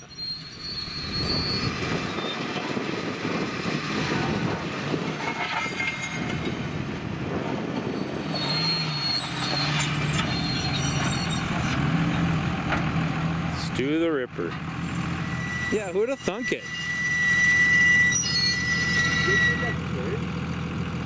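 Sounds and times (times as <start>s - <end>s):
high thin squeal: 0.0s - 2.3s, 8.4s - 11.7s, 14.9s - 19.8s
tires churning through mud: 0.0s - 21.0s
vehicle engine running hard: 0.0s - 21.0s.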